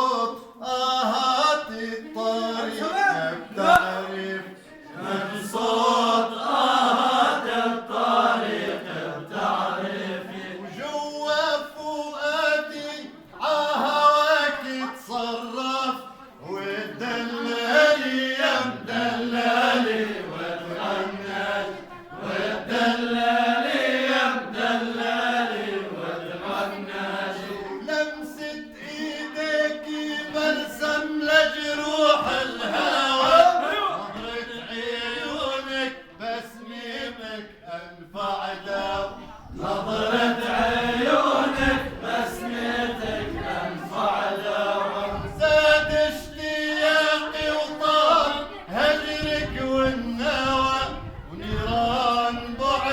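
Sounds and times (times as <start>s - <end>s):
men singing slow song: 0.0s - 9.5s.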